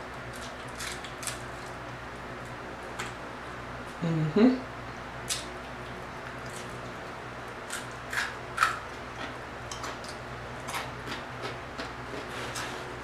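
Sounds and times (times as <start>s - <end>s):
steady low hum: 0.0s - 13.0s
chewing crispy fried fish: 0.2s - 1.8s, 5.3s - 12.6s.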